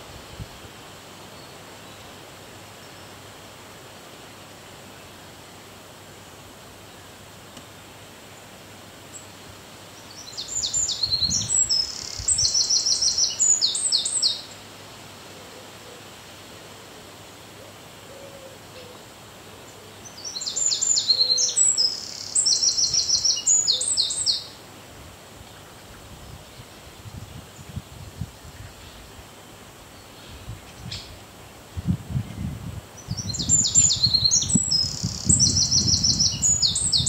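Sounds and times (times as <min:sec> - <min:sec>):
steady background hiss: 0:00.0 - 0:37.0
songbird trilling: 0:10.1 - 0:14.5, 0:20.1 - 0:24.5, 0:33.0 - 0:37.0.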